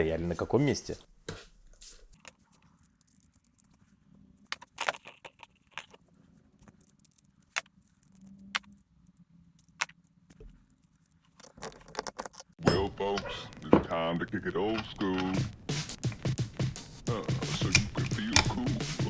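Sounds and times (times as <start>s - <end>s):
metal parts and tools clinking: 2.2s - 12.9s, 17.6s - 18.7s.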